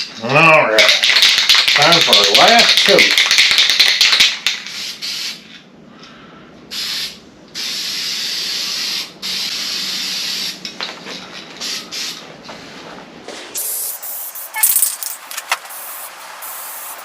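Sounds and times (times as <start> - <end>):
spray paint can spraying: 0.8 - 5.4, 6.7 - 10.6, 13.6 - 17.0.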